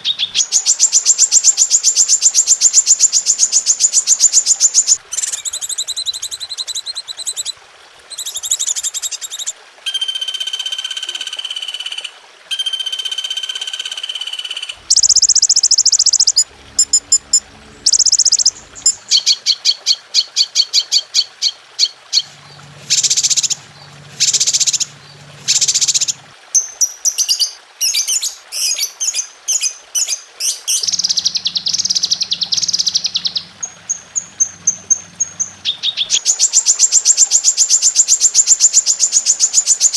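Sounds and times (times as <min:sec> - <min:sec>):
songbird songs and calls: 0:00.0 - 0:39.9
low hum: 0:14.8 - 0:19.2, 0:22.3 - 0:26.4.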